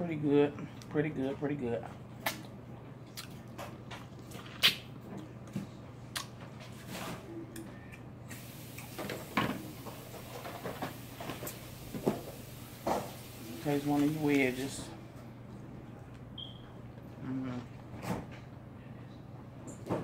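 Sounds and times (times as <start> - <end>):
person chewing crispy food: 2.2 - 4.8.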